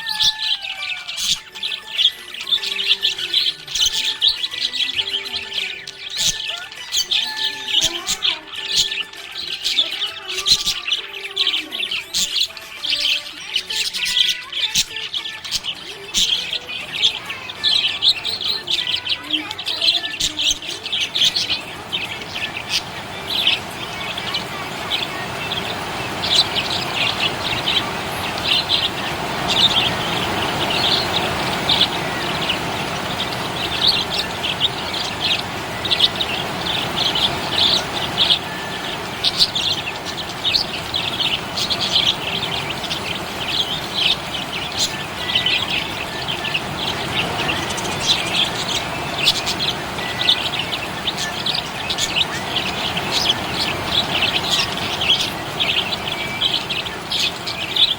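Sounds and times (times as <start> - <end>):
budgerigars chirping and warbling: 0.0 - 57.9
steady rushing noise: 20.4 - 57.9.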